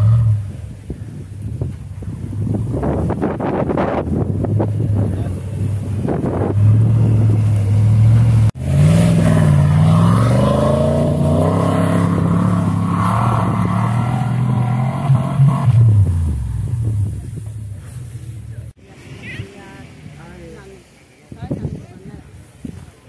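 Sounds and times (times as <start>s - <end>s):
engine revving hard: 5.0s - 16.4s.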